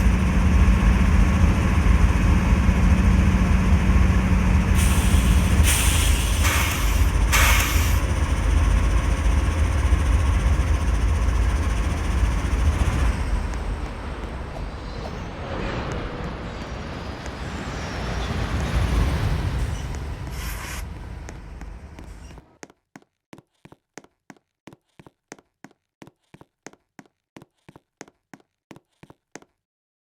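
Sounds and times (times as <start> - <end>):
freight train rumbling by: 0.0 - 22.4.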